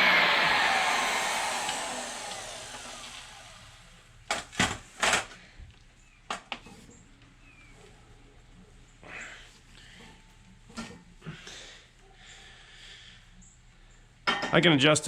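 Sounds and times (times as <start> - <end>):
circular saw winding down: 0.0 - 3.9.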